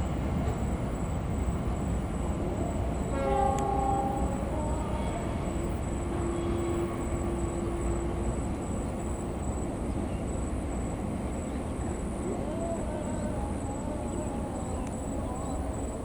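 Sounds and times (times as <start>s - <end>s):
train wheels rumbling on rails: 0.0s - 16.0s
train horn: 3.0s - 8.9s.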